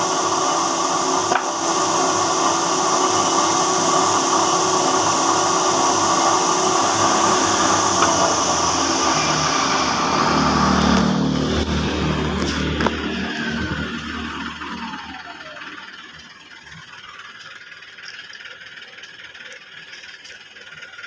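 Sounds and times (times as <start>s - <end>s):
router cutting wood: 0.0s - 16.1s
low hum: 4.8s - 21.0s.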